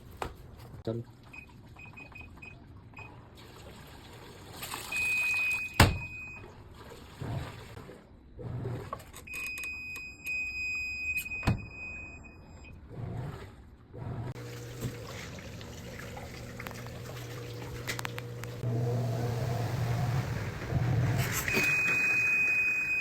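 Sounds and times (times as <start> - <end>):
washing machine electronic beeps: 1.2 - 3.4, 4.5 - 13.3, 16.2 - 23.0
washing machine low rumble: 12.7 - 23.0.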